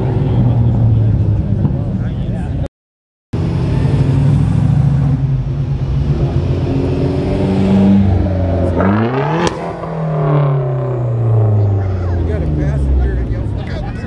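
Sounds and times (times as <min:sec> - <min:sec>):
car engine revving: 0:03.4 - 0:14.0.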